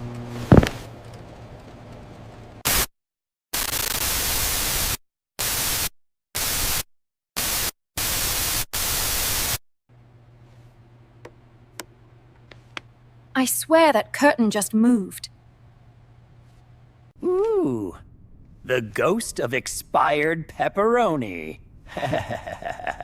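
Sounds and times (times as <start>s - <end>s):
white noise static bursts: 2.7s - 2.9s, 3.6s - 6.8s, 7.4s - 9.6s
faint low hum: 10.0s - 23.0s.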